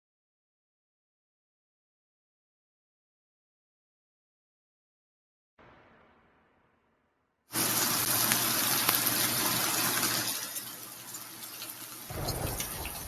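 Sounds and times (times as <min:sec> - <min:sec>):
rushing water: 0:07.6 - 0:13.0
low rumble: 0:12.1 - 0:13.0.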